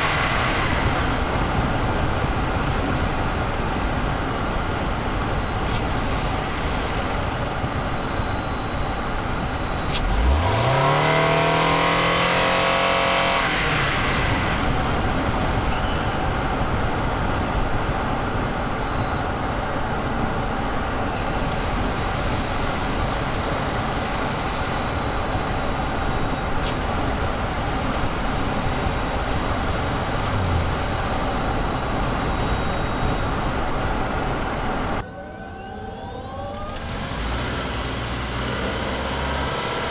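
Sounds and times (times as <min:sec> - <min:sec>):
car engine revving: 0:00.0 - 0:02.5, 0:05.5 - 0:16.9, 0:21.0 - 0:33.0, 0:36.6 - 0:39.9
car cabin road and tyre noise: 0:00.0 - 0:39.9.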